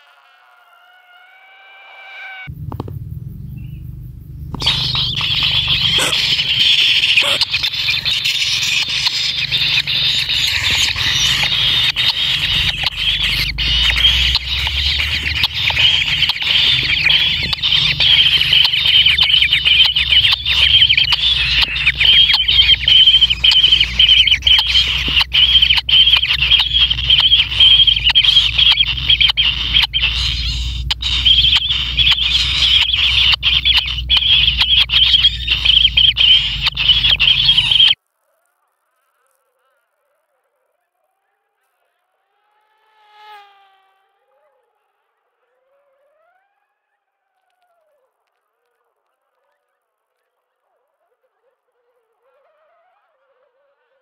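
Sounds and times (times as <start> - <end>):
nestlings buzzy begging call: 3.4 - 38.0
sharp clicks: 4.5 - 38.0.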